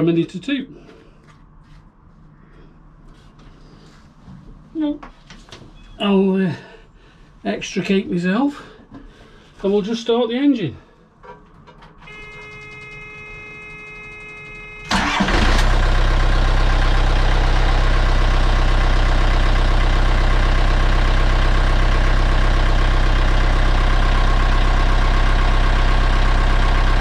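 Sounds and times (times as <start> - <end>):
warning buzzer tone: 12.0 - 15.0
diesel engine starting and idling: 12.0 - 27.0.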